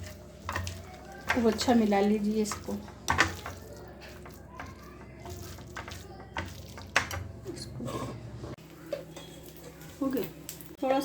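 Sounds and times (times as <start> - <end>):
wet mixture squishing in bowl: 0.0 - 8.2.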